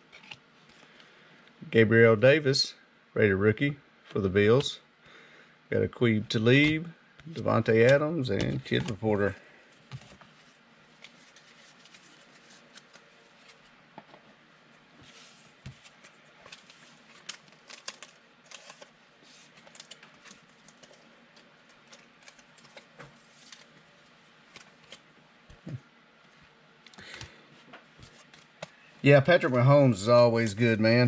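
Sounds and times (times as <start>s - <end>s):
trading cards clicking and rustling: 6.5s - 9.3s, 15.7s - 23.8s.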